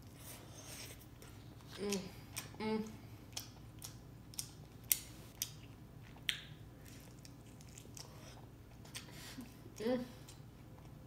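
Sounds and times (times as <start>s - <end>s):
person chewing: 3.2s - 9.6s
wet mouth clicks and smacks: 6.2s - 6.6s.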